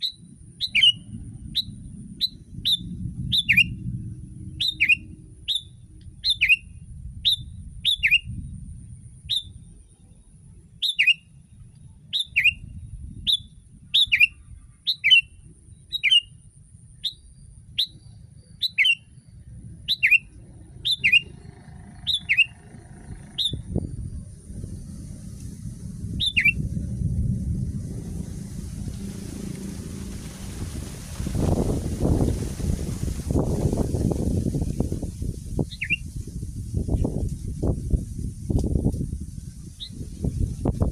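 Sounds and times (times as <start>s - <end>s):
bird chirping calls: 0.0s - 3.8s, 4.5s - 8.3s, 10.8s - 11.2s, 12.1s - 12.6s, 13.3s - 15.3s, 15.9s - 16.3s, 17.0s - 19.2s, 19.9s - 24.3s, 26.1s - 26.6s, 35.6s - 36.1s.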